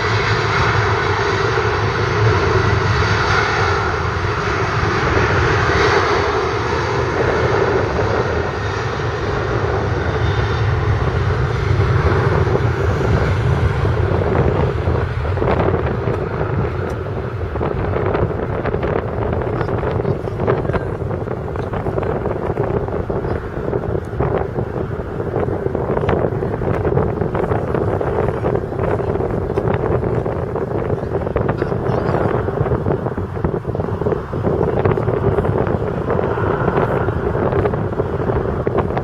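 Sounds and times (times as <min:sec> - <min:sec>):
jet engines roaring: 0:00.0 - 0:39.0
wind knocks on microphone: 0:12.0 - 0:39.0.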